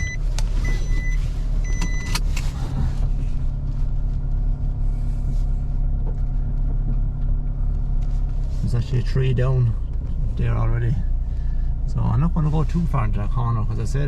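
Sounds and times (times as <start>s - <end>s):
electronic beep: 0.0s - 2.1s
vehicle engine rumbling: 0.0s - 14.0s.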